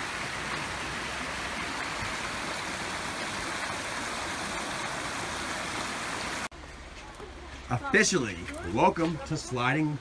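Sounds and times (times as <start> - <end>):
creek water rushing over rock: 0.0 - 6.5.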